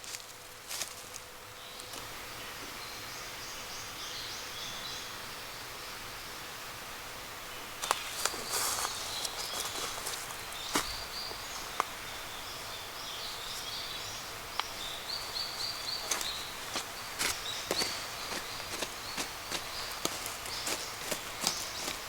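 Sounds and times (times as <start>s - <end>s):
small bird calling: 7.8s - 22.0s.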